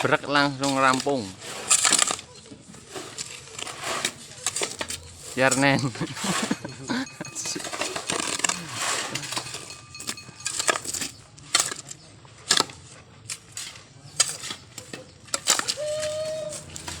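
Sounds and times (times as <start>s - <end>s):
low voices: 0.0s - 10.4s, 15.6s - 17.0s
sharp knocks or clinks: 6.7s - 11.9s.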